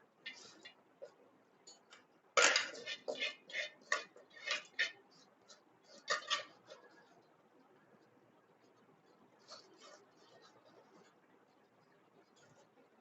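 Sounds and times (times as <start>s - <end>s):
metal spoon scraping a pot: 0.3s - 0.8s, 1.7s - 7.2s.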